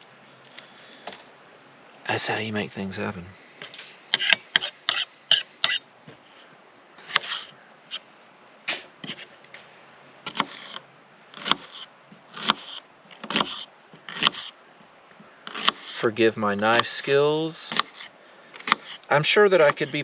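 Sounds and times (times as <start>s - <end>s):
knife chopping on cutting board: 14.1s - 14.4s.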